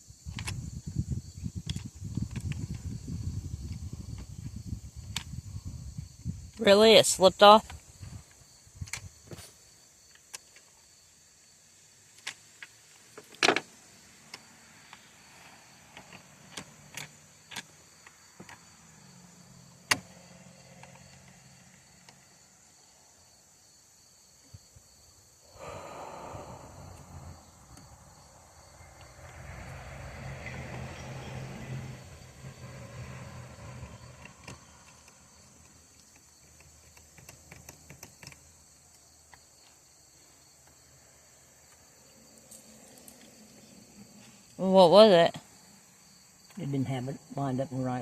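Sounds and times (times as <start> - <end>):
low hum: 25.6 - 34.0.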